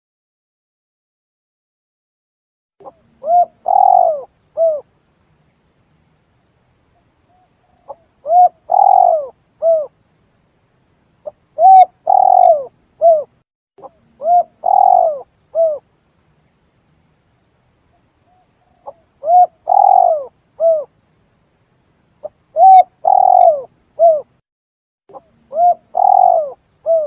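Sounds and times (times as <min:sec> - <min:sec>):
dove cooing: 0:02.8 - 0:04.9, 0:07.3 - 0:09.9, 0:11.6 - 0:15.8, 0:18.3 - 0:20.9, 0:22.2 - 0:24.3, 0:25.1 - 0:27.0.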